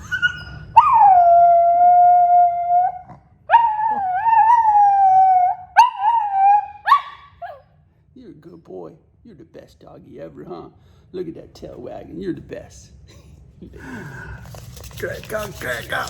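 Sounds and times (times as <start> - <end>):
dog howling: 0.0 - 7.7
dog yipping: 0.0 - 7.7.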